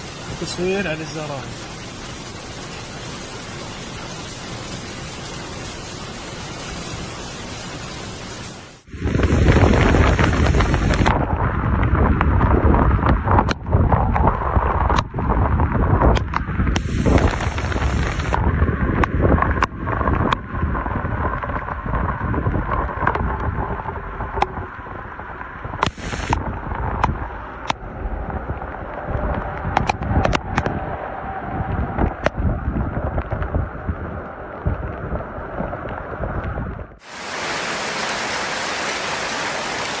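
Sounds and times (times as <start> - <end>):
raindrops ticking close by: 0.0 - 31.0
heavy rain: 0.0 - 40.0
wind buffeting microphone: 8.9 - 37.0
steady even hiss: 16.8 - 18.4, 25.8 - 26.4.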